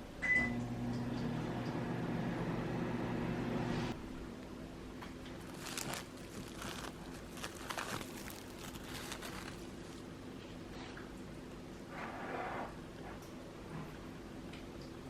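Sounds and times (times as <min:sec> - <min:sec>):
microwave oven humming: 0:00.0 - 0:04.2
microwave button beep: 0:00.2 - 0:00.7.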